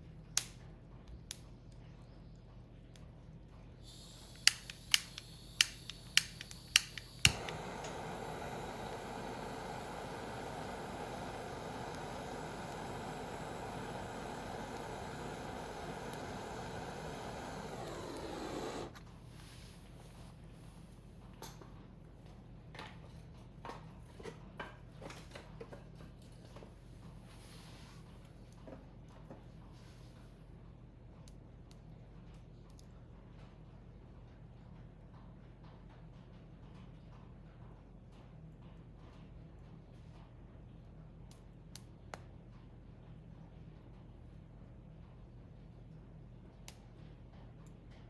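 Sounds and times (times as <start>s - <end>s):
gas torch igniter clicking: 3.8s - 19.0s
gas burner hissing: 3.8s - 19.8s
firewood crackling and popping: 3.9s - 19.0s.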